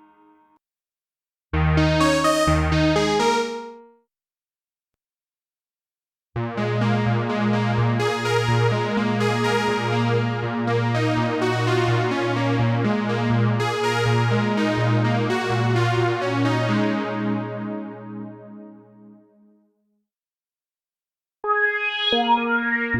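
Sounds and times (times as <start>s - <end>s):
repeating bass note: 1.6s - 3.6s
synth chords: 1.6s - 3.9s.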